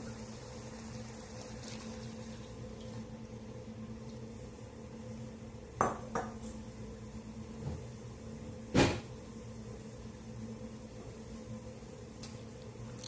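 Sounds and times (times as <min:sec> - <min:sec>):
cookware knock: 0:05.8 - 0:06.4.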